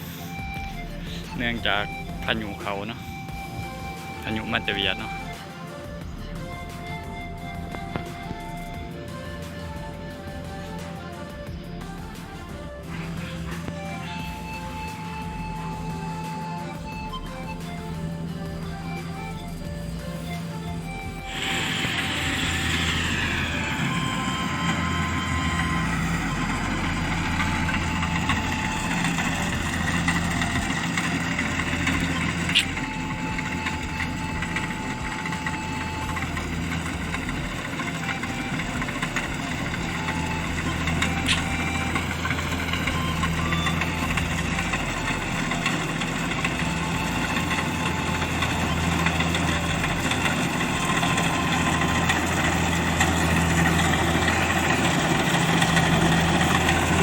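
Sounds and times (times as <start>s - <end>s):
combine harvester engine running: 0.0s - 57.0s
sharp clicks: 36.1s - 44.2s.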